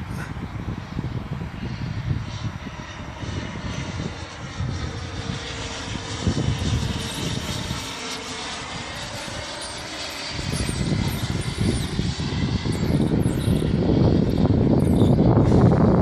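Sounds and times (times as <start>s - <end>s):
electric ducted fan whine: 0.0s - 16.0s
wind rumbling on microphone: 0.0s - 16.0s.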